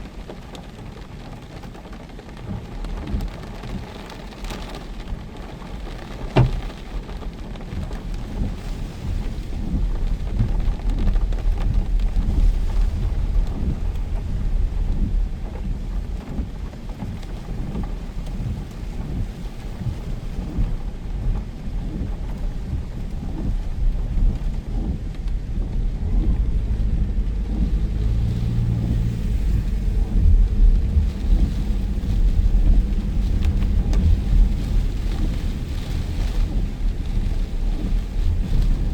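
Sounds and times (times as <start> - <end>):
heavy rain pouring: 0.0 - 38.9
wind buffeting microphone: 5.1 - 38.9
sharp knock: 6.4 - 6.7.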